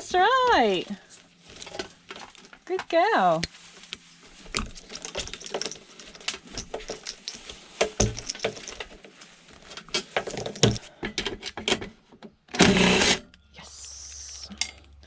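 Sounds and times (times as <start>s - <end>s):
metal parts and tools clinking: 4.6s - 9.0s, 9.8s - 10.8s.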